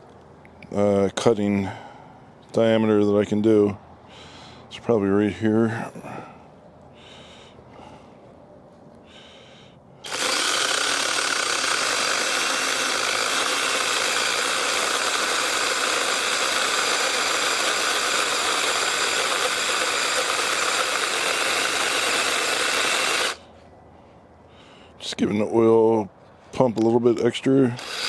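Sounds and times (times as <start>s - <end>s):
mini chainsaw cutting log: 10.0s - 23.4s, 27.8s - 28.0s.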